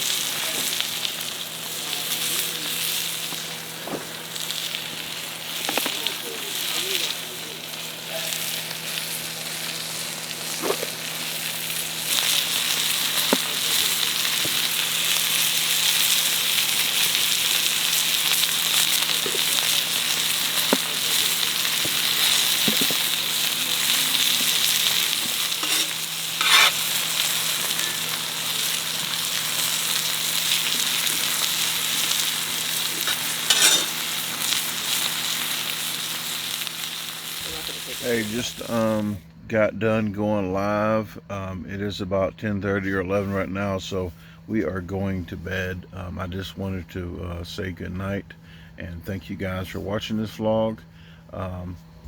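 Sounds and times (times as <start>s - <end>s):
food frying and sizzling: 0.0s - 39.2s
crackles of frying food: 0.0s - 39.3s.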